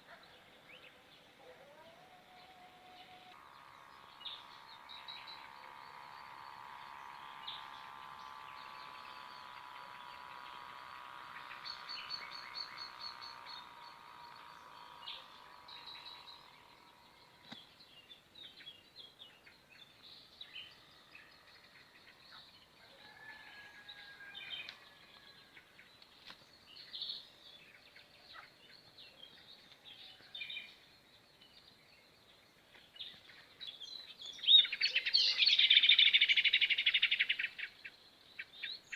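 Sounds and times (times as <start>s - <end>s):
small birds chirping: 0.0s - 22.8s, 24.5s - 38.9s
steady hum: 1.9s - 18.0s.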